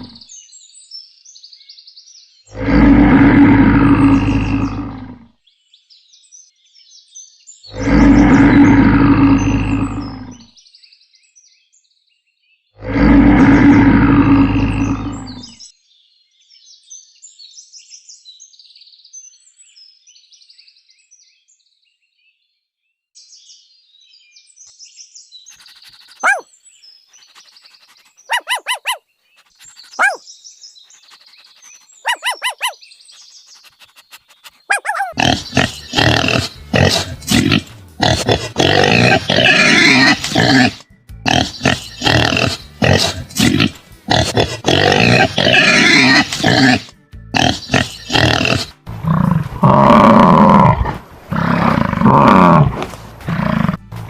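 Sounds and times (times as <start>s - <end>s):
loud animal roar: 0.0s - 0.2s, 2.5s - 5.3s, 7.7s - 10.5s, 12.8s - 15.6s, 30.0s - 30.2s, 34.7s - 54.0s
faint chirping: 25.5s - 26.5s, 27.1s - 36.5s
short sharp animal calls: 26.0s - 26.4s, 28.3s - 29.0s, 29.8s - 30.2s, 32.0s - 32.8s, 33.9s - 35.2s.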